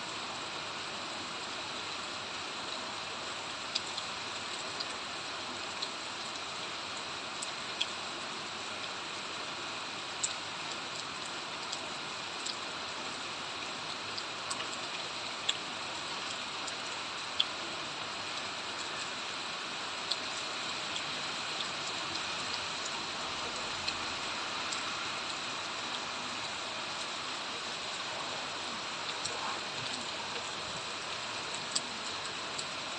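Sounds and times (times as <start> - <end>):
steady rain hiss: 0.0 - 32.9
water drips on surfaces: 10.0 - 32.9.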